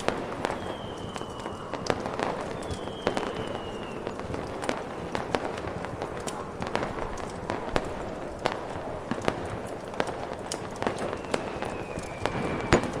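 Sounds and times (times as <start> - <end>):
firework whistles: 0.0 - 5.4, 10.8 - 13.0
sharp pops and crackles: 0.0 - 13.0
wind-like snowstorm noise: 0.0 - 13.0.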